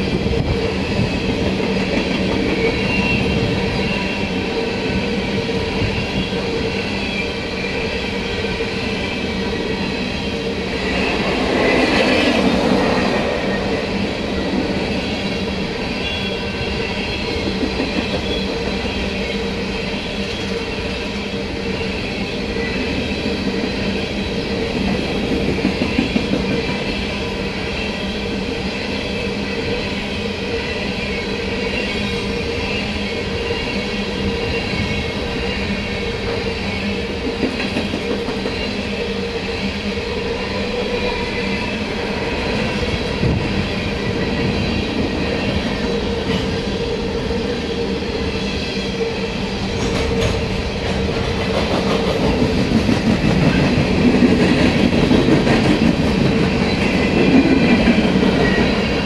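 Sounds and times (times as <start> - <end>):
train wheels clacking: 0.0 - 6.5, 10.8 - 19.2, 22.6 - 27.3, 36.2 - 38.9, 49.6 - 59.0
train wheels rumbling on rail: 0.0 - 59.0.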